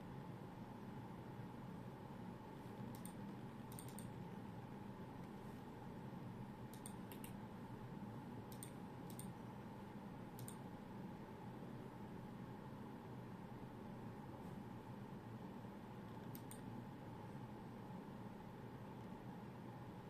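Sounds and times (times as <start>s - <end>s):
steady low hum: 0.0s - 20.0s
faint high-pitched clicks: 2.9s - 4.2s, 6.7s - 7.4s, 8.5s - 9.4s, 10.4s - 10.6s, 16.1s - 16.7s.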